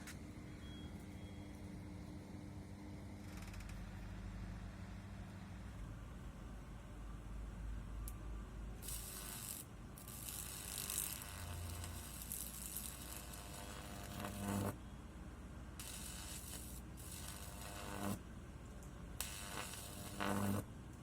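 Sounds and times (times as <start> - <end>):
high-voltage arc crackling: 8.8 - 14.8, 15.8 - 18.2, 19.2 - 20.7.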